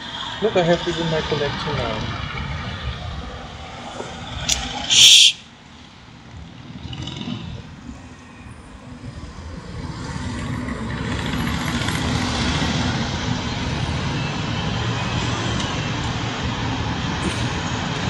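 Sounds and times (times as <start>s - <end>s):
helicopter rotor and engine: 9.6s - 18.0s.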